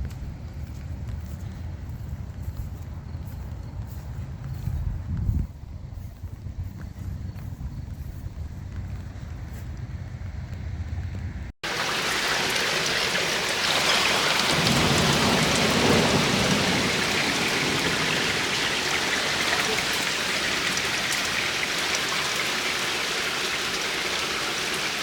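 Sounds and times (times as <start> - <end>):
steady rain falling: 11.6 - 25.0
raindrop ticks: 13.6 - 24.9.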